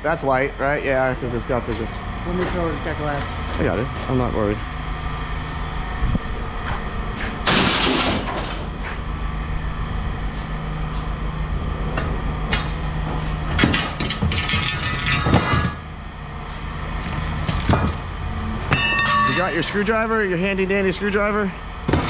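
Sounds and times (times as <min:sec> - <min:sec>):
steady low hum: 0:00.0 - 0:22.0
metal knocks and clanks: 0:07.5 - 0:08.7, 0:13.5 - 0:15.9, 0:17.0 - 0:20.0
glass item crashing: 0:14.0 - 0:15.8, 0:17.0 - 0:18.1, 0:18.7 - 0:19.9.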